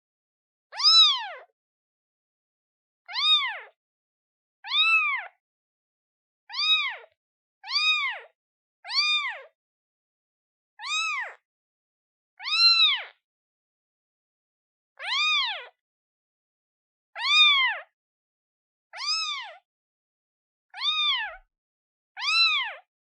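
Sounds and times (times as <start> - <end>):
kitten meowing: 0.7 - 1.5, 3.1 - 3.8, 4.6 - 5.4, 6.5 - 8.3, 8.9 - 9.5, 10.8 - 11.4, 12.4 - 13.1, 15.0 - 15.7, 17.2 - 17.9, 19.0 - 19.6, 20.8 - 21.4, 22.2 - 22.9.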